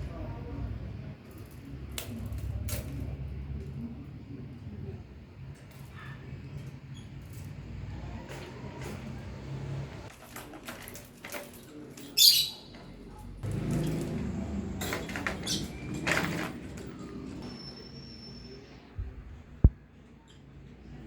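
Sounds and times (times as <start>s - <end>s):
kittens scuffling and tapping: 5.4s - 17.4s.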